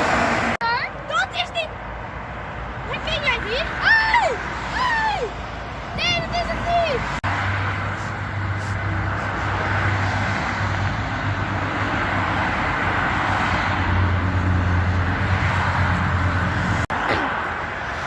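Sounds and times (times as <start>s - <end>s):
truck diesel engine droning: 6.0s - 16.9s.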